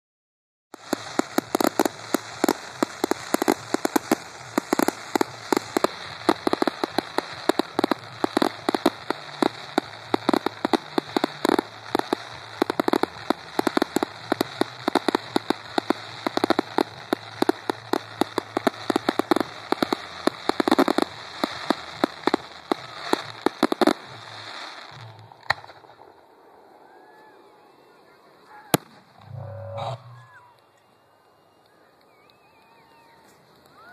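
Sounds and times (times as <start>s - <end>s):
fireworks bangs and crackling: 0.7s - 29.4s.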